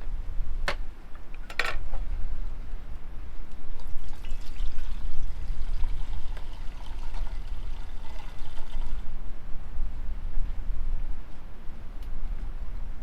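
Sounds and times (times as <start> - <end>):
liquid pouring into vessel: 3.7 - 9.1.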